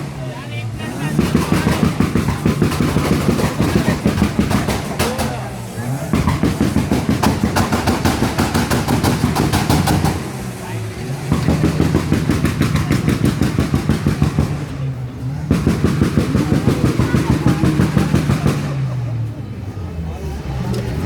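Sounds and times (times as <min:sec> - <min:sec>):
exhaust popping and banging: 0:00.0 - 0:19.6
car engine on rev limiter: 0:00.0 - 0:21.0.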